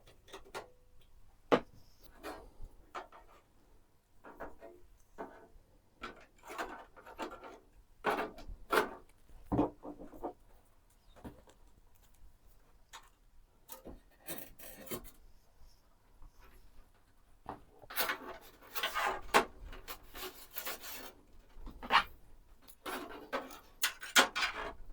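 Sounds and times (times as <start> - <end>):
computer parts rubbing and clicking: 17.9 - 22.1.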